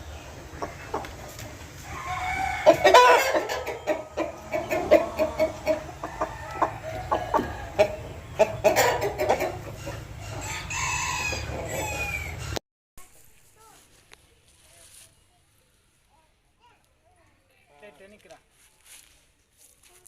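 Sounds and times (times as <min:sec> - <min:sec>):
chickens clucking: 0:00.0 - 0:12.6
loud chicken call: 0:01.8 - 0:12.6.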